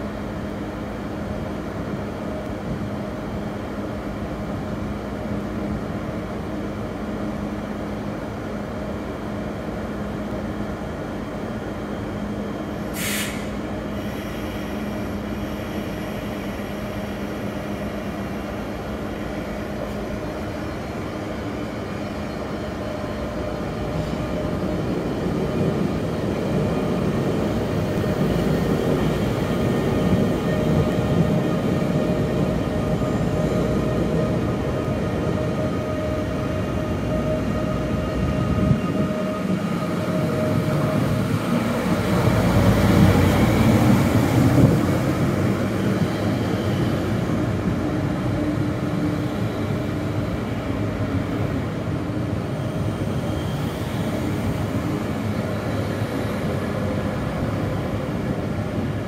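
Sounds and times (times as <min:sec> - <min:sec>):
train electrical hum: 0:00.0 - 0:59.0
train pulling away: 0:12.6 - 0:59.0
compressed air hiss: 0:12.9 - 0:14.8.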